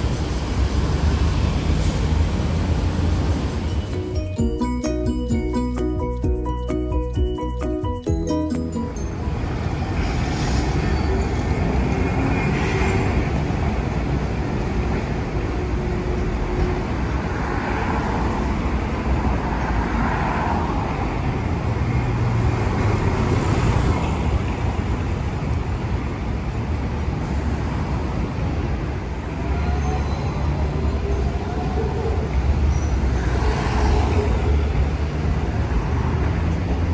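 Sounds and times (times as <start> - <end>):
cars passing: 0.0 - 36.9
road noise hum: 0.0 - 36.9
tram whine starting: 0.2 - 21.6.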